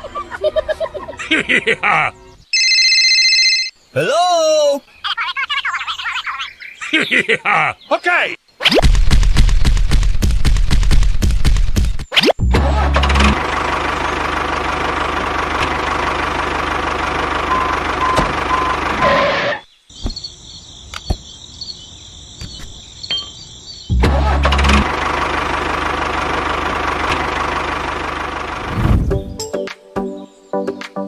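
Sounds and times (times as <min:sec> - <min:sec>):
small tractor motor running: 0:12.6 - 0:19.5, 0:24.1 - 0:28.8.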